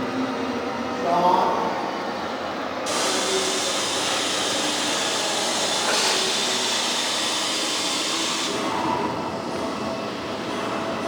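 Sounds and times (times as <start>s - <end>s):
loud hiss of gas jetting: 2.9s - 8.6s.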